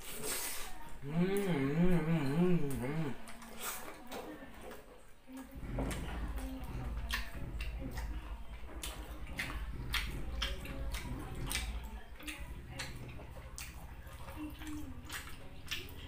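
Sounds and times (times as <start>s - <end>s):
close-up chewing with mouth clicks: 0.3s - 16.0s
low background hum: 5.1s - 16.0s.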